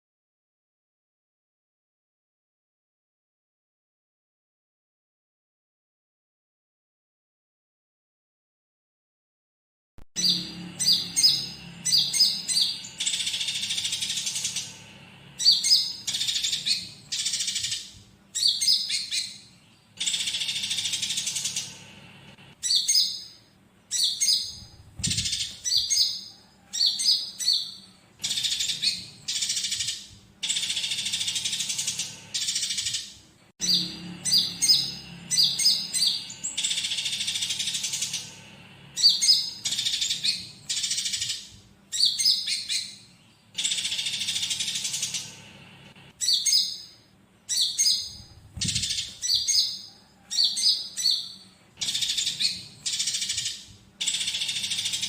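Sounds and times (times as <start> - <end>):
sparrow chatter: 10.2 - 22.0, 22.6 - 45.5, 46.2 - 55.0
songbird chirping with buzzy rattle: 10.2 - 55.0.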